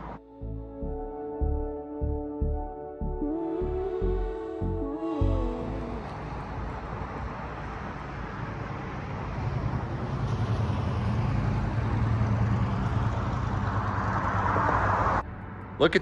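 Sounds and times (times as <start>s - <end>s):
street noise: 0.0s - 0.2s, 5.1s - 16.0s.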